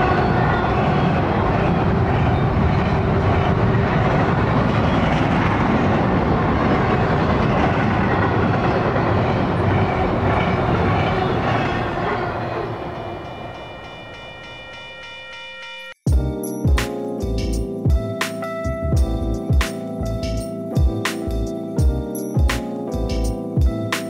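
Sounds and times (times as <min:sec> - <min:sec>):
freight train wheels rumbling: 0:00.0 - 0:14.9.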